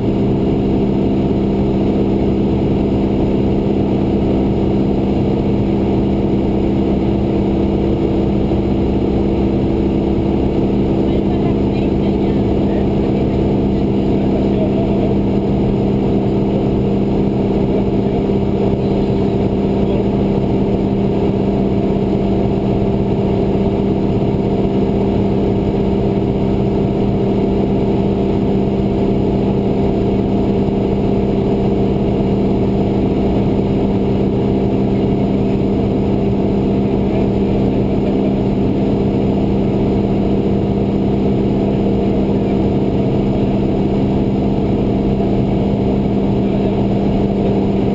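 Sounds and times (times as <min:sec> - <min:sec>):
propeller aircraft engine droning: 0:00.0 - 0:47.9.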